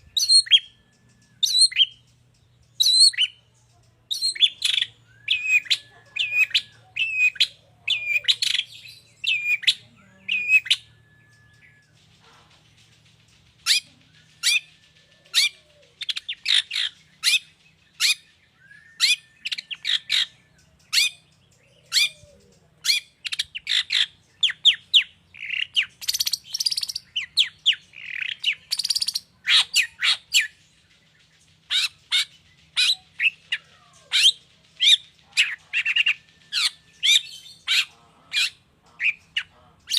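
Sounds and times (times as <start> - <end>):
shrike singing: 4.1 - 12.1.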